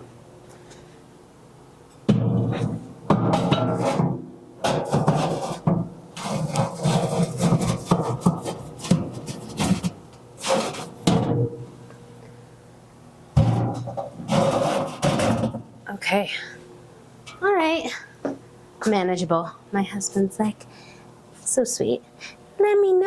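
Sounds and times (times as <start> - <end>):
metal scraping: 3.3 - 11.4, 13.4 - 15.6.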